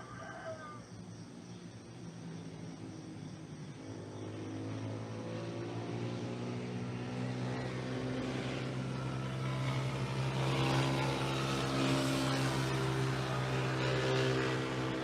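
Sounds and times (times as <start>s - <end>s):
engine running: 4.0s - 15.0s.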